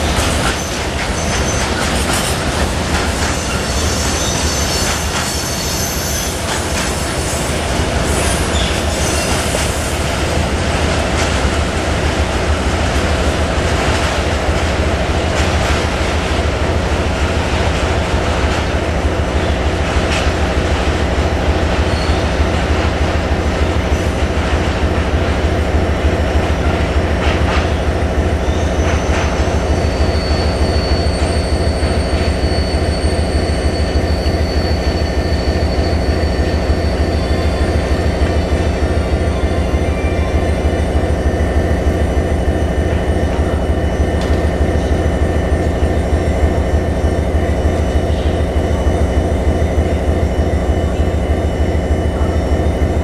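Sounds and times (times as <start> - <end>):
wheels clacking over rail joints: 0.0 - 5.6
train wheels rumbling on rail: 0.0 - 53.0
high brake squeal: 3.2 - 10.1, 28.4 - 37.5.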